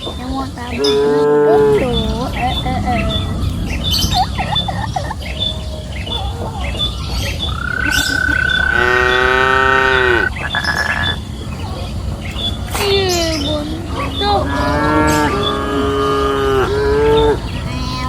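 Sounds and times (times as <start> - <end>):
cattle mooing: 0.8 - 6.0, 7.5 - 11.1, 14.3 - 17.4.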